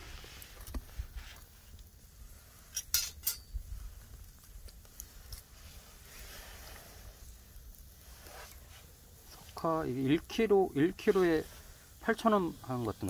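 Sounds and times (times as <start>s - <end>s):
oyster shells clinking on wire grill: 2.7s - 3.5s.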